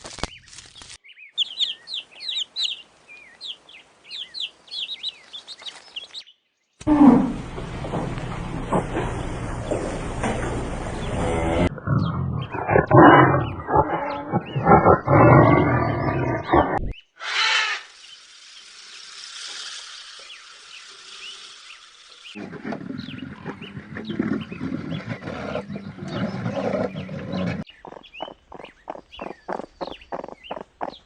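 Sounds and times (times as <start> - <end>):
large animal growling and roaring: 11.2 - 16.9, 22.4 - 27.7
steady hiss: 17.8 - 22.4
high chirps: 27.7 - 31.0.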